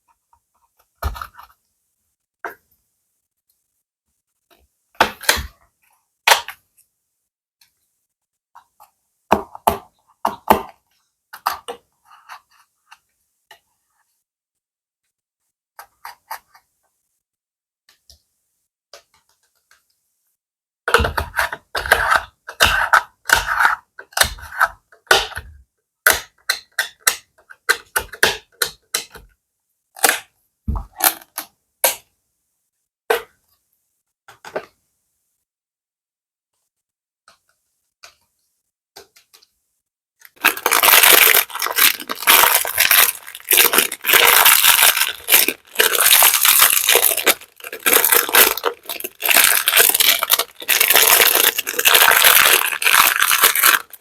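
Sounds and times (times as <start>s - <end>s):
plastic bag crinkling: 40.3s - 54.0s.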